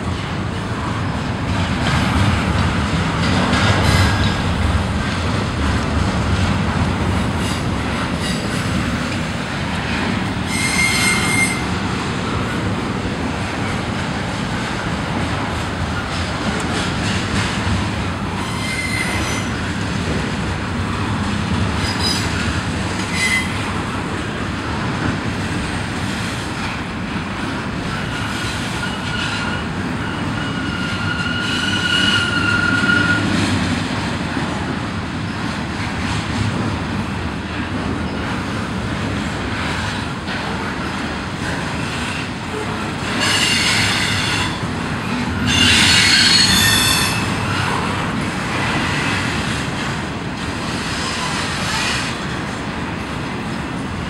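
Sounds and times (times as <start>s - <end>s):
train wheels rumbling on rail: 0.0s - 54.0s
metallic wheel squeals: 10.5s - 11.6s, 45.4s - 47.3s.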